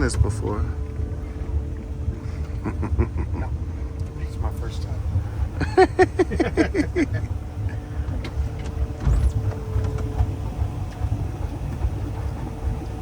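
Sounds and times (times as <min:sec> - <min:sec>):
boat engine idling: 0:00.0 - 0:13.0
burst of laughter: 0:02.5 - 0:03.5, 0:05.6 - 0:07.3.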